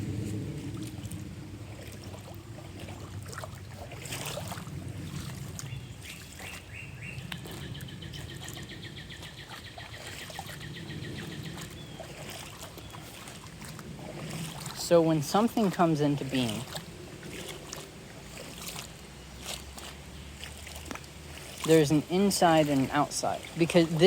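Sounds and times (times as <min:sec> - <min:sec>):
low rumble: 0:00.0 - 0:09.3, 0:10.5 - 0:15.5
songbird trilling: 0:05.6 - 0:13.5, 0:20.1 - 0:20.5
bird chirps: 0:05.7 - 0:13.1.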